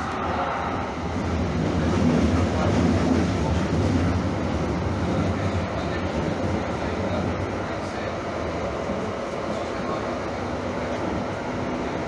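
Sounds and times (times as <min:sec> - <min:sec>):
light rail train rumbling on track: 0:00.0 - 0:12.0.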